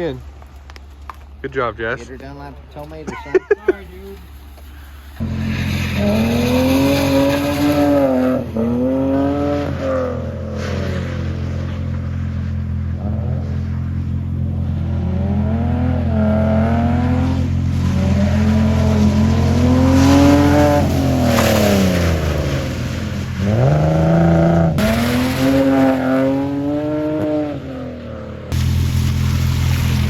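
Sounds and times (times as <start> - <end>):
car engine revving hard: 5.2 - 11.8, 14.5 - 27.8.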